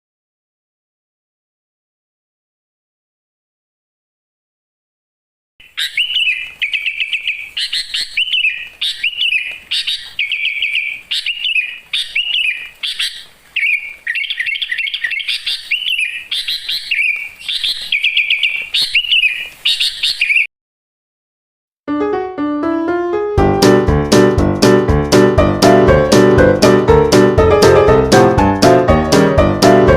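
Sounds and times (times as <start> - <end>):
songbird chirps and trills: 5.6 - 20.5.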